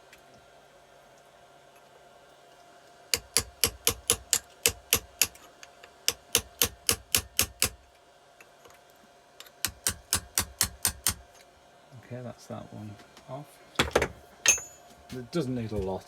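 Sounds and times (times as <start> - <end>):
hammer tapping chisel on metal: 3.2 - 5.4, 6.1 - 7.8, 9.5 - 11.2, 13.8 - 14.9.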